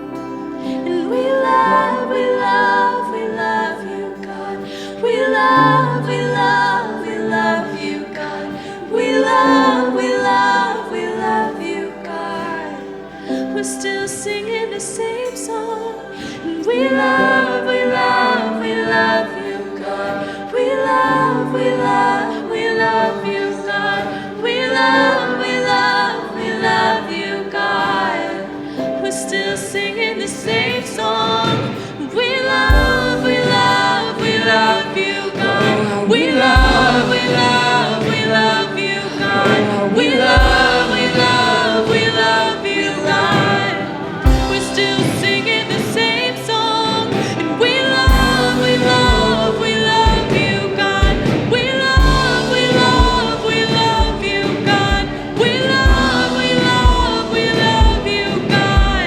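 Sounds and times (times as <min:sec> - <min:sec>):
choir singing worship music: 0:00.0 - 0:59.0
band chords: 0:29.7 - 0:59.0.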